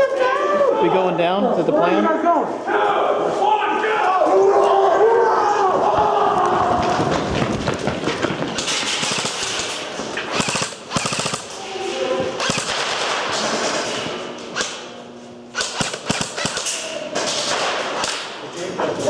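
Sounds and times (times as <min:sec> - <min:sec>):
airsoft guns firing: 0:06.9 - 0:11.6, 0:12.4 - 0:14.9, 0:15.5 - 0:18.4.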